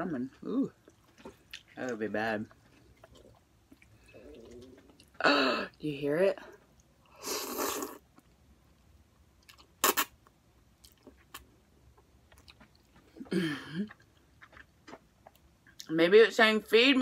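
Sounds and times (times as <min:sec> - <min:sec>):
food crunch: 0:00.3 - 0:05.2, 0:06.6 - 0:15.9
chewing clicks: 0:02.5 - 0:05.2.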